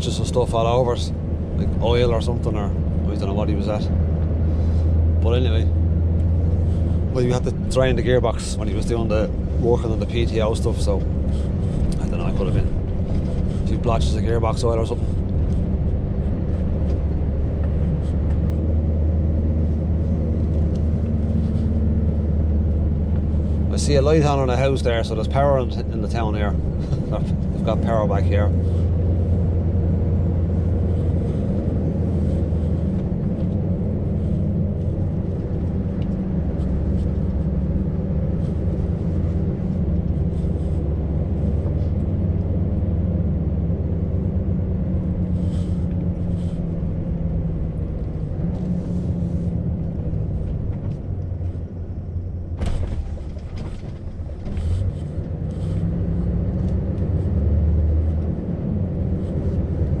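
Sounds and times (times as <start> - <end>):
road noise: 0.0 - 60.0
truck engine running: 0.0 - 60.0.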